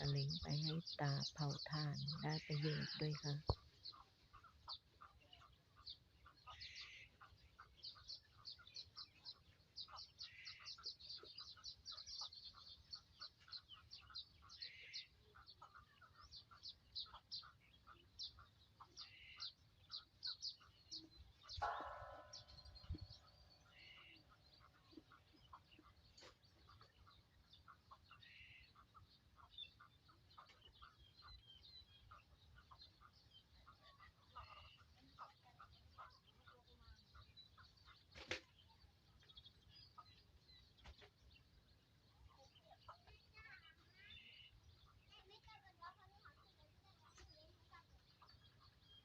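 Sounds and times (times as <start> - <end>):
hoarse bird calls: 21.3 - 26.0.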